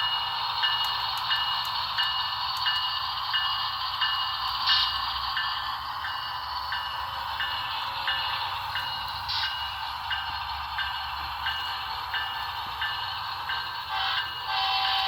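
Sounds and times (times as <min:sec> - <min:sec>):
model train motor whirring: 0:00.0 - 0:06.0, 0:10.7 - 0:15.0.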